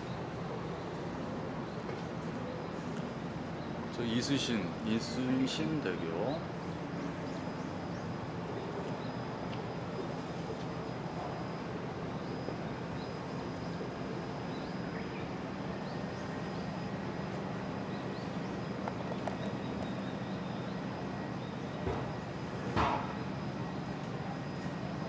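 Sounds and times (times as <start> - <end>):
knock: 22.8 - 23.1.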